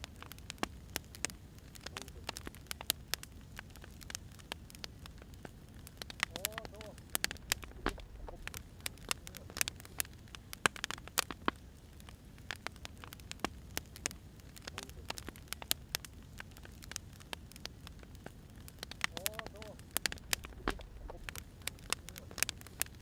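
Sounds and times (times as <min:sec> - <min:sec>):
firewood crackling and popping: 0:00.0 - 0:23.0
low steady rumble: 0:04.9 - 0:09.6, 0:13.6 - 0:23.0.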